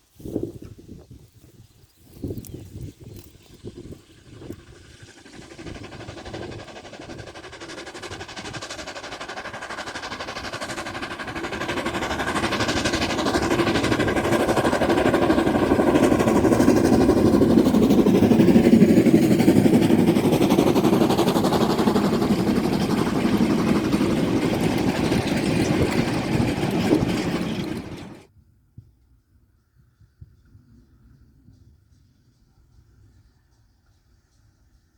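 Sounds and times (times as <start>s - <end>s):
steam locomotive passing: 2.8s - 28.3s.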